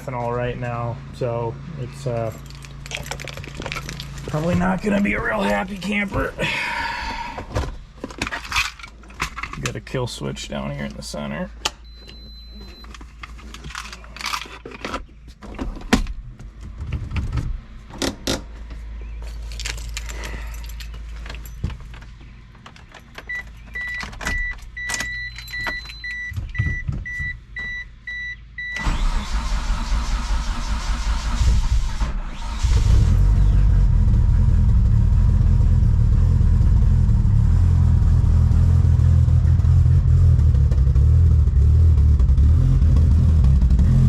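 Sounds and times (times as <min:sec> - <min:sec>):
car engine cranking and starting: 0:01.9 - 0:09.8, 0:19.5 - 0:44.0
car warning chime beeping: 0:23.2 - 0:29.2.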